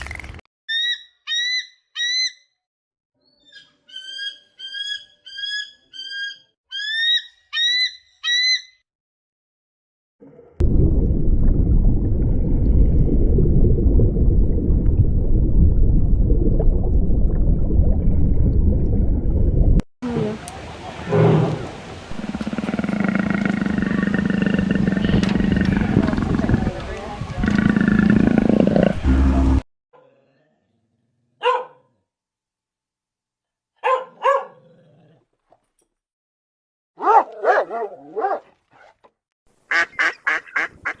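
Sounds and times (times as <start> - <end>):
loud low rumbling noise: 10.6 - 19.8, 22.1 - 29.6.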